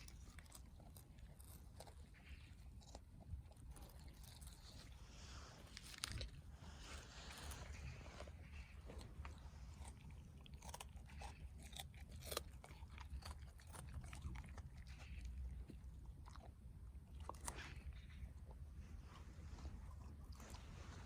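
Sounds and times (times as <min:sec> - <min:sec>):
dog chewing grass: 0:00.0 - 0:21.0.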